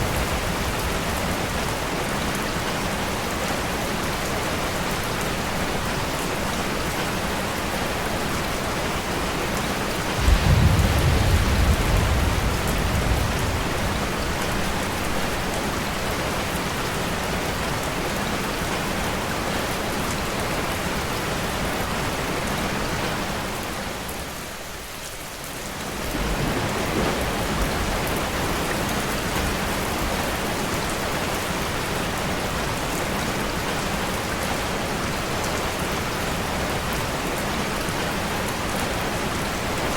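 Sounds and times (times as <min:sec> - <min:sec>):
steady rain falling: 0:00.0 - 0:39.9
thunder clap rumbling: 0:10.1 - 0:15.2, 0:25.9 - 0:30.6.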